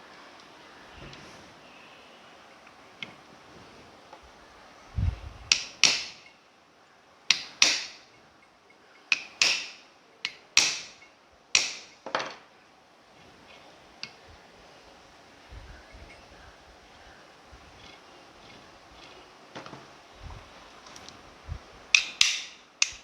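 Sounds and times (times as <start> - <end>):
hammer tapping on motor body: 5.5 - 6.2, 7.3 - 8.0, 9.1 - 11.0, 11.6 - 12.0, 22.0 - 23.0.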